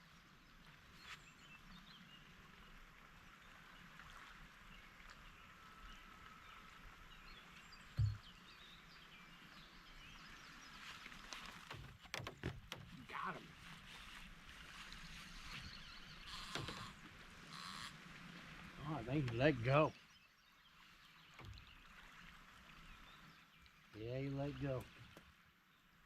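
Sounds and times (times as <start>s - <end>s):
dull thump: 8.0s - 8.3s.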